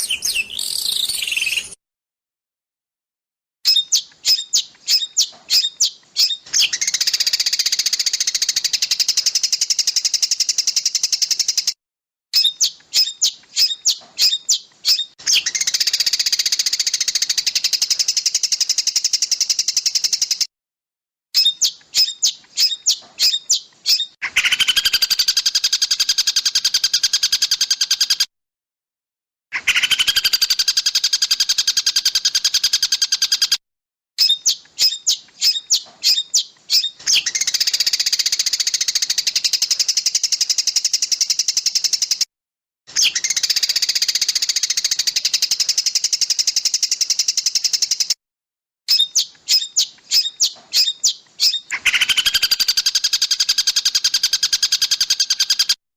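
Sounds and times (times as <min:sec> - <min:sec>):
sharp rapid bird chirps: 0:00.0 - 0:01.8, 0:03.7 - 0:11.8, 0:12.4 - 0:20.5, 0:21.4 - 0:28.3, 0:29.6 - 0:33.6, 0:34.2 - 0:42.3, 0:42.9 - 0:48.2, 0:48.9 - 0:55.8
dense fast bird trills: 0:48.9 - 0:55.8.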